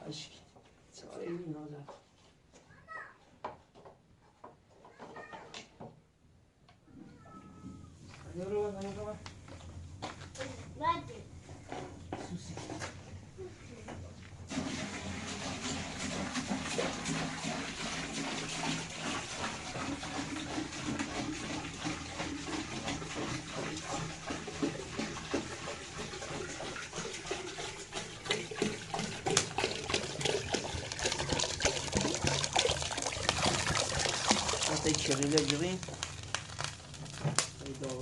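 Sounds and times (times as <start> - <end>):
water running and splashing: 14.5 - 38.0.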